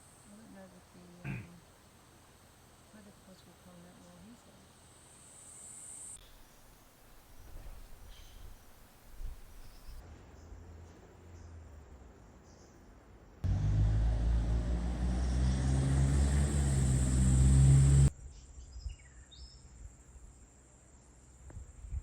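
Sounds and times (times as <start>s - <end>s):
faint bird chirps: 7.4s - 10.5s
car engine and road noise: 13.4s - 18.1s.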